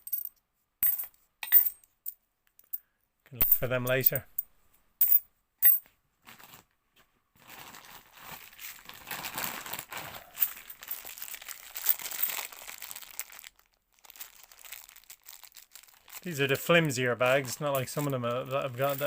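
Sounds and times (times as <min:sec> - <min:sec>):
plastic bag crinkling: 0:07.4 - 0:19.0.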